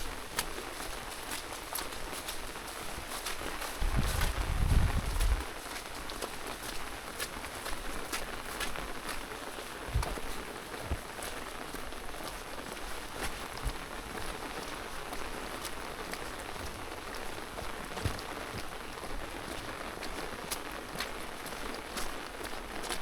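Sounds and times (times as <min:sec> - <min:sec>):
steady rain hiss: 0:00.0 - 0:23.0
soft low thumps: 0:03.8 - 0:05.5, 0:09.8 - 0:11.1.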